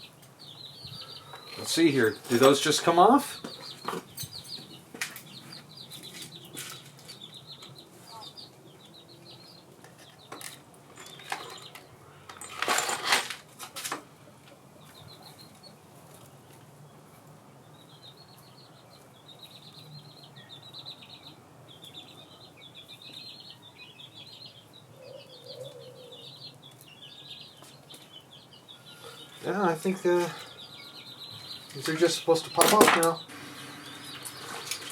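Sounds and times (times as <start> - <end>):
small birds chirping: 0.0 - 12.6, 13.5 - 34.9
metal tools clanking: 1.6 - 3.0, 10.4 - 14.0, 31.8 - 33.2.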